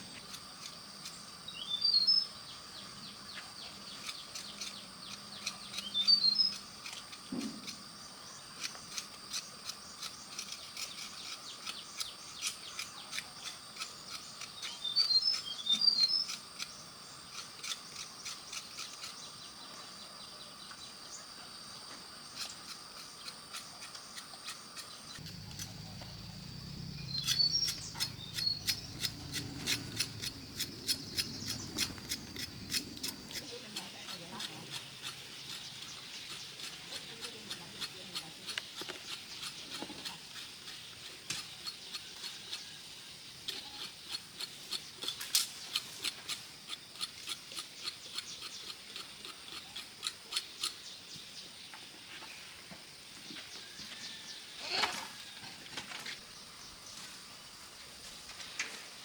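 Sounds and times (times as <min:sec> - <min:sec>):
high insect drone: 0:00.0 - 0:59.0
birds chirping: 0:01.0 - 0:07.4, 0:08.0 - 0:46.0.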